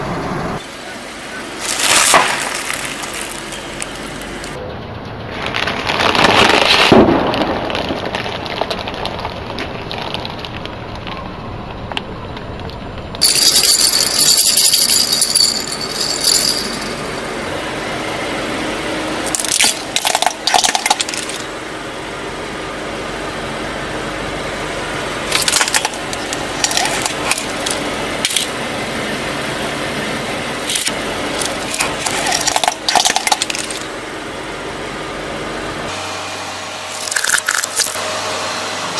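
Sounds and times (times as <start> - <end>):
tyre crushing brittle objects: 1.6 - 4.6, 5.4 - 11.1, 19.3 - 21.5, 25.3 - 28.5, 30.7 - 33.9, 36.9 - 38.0.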